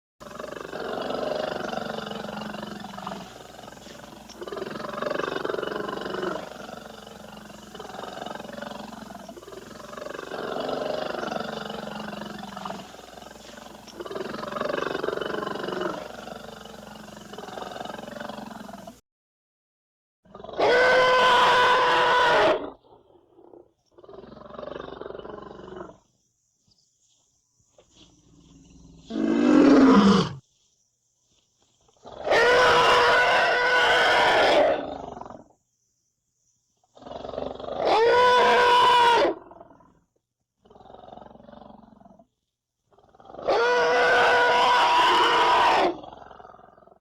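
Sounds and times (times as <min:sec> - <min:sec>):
animal roaring calls: 0:00.2 - 0:19.0, 0:20.3 - 0:22.8, 0:28.4 - 0:30.4, 0:32.1 - 0:35.4, 0:37.0 - 0:39.8, 0:43.2 - 0:46.6.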